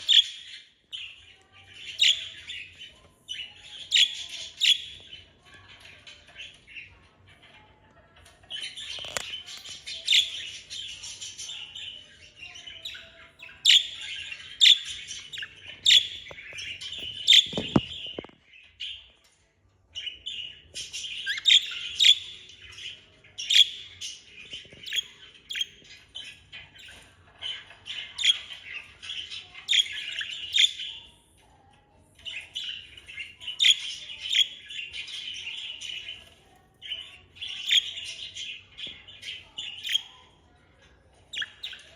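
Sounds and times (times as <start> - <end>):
budgerigars warbling and chattering: 0.0 - 7.5, 8.3 - 19.1, 20.0 - 31.2, 32.2 - 40.2, 41.2 - 41.9
high bird chirps: 8.6 - 19.1, 20.0 - 31.1.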